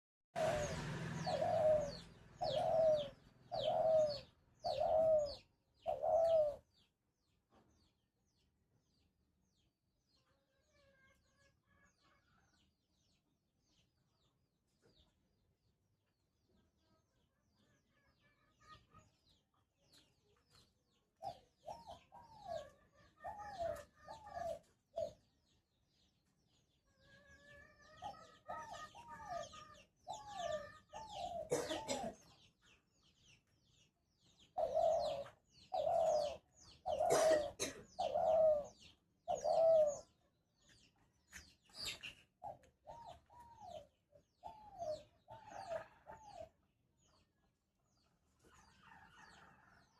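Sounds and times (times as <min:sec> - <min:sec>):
dove cooing: 0:00.4 - 0:06.8, 0:21.2 - 0:25.3, 0:27.0 - 0:32.4, 0:34.3 - 0:40.2, 0:41.8 - 0:46.6.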